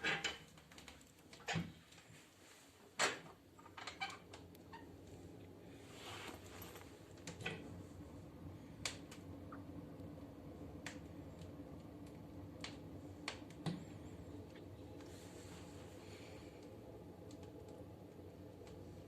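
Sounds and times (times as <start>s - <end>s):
wood fire crackling and popping: 0.1s - 2.1s, 8.5s - 19.0s.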